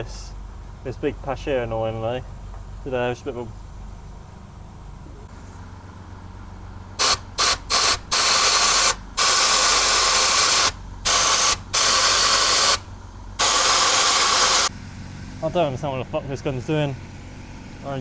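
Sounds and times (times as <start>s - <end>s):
steady low hum: 0.0s - 18.0s
spray gun hissing bursts: 7.0s - 14.7s.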